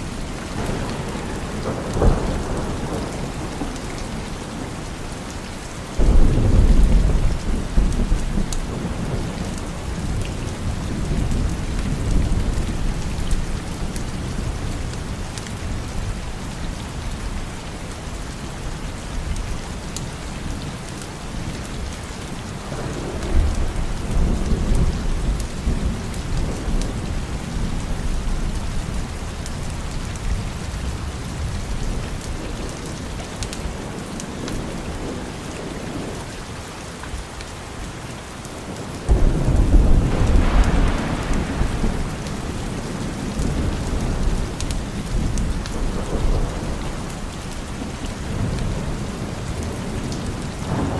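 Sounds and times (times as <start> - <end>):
thunder rumbling: 0.0 - 5.2, 6.0 - 15.2, 22.6 - 36.2, 39.1 - 50.9
steady rain: 0.0 - 50.9.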